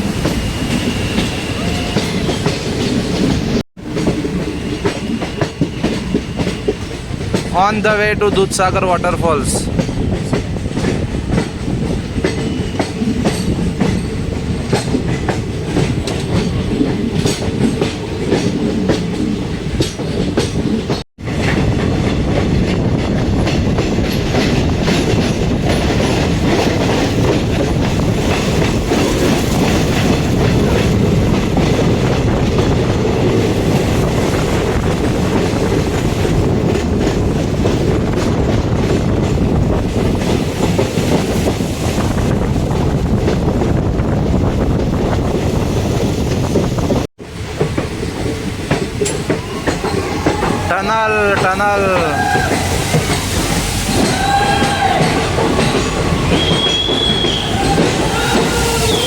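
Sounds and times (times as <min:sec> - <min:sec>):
train rumble: 0:00.0 - 0:59.0
wheels clacking over rail joints: 0:09.7 - 0:59.0.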